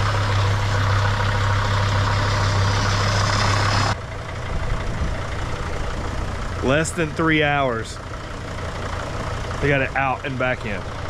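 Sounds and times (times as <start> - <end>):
van engine idling: 0.0 - 11.0.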